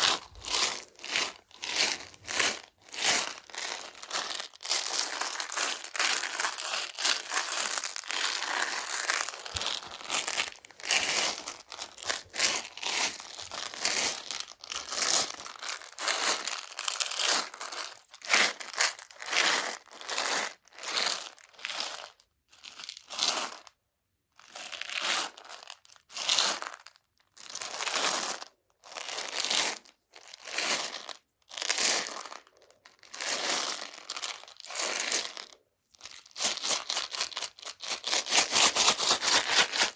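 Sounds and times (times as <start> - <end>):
candy packaging rustling: 0.0 - 18.0, 36.0 - 39.9.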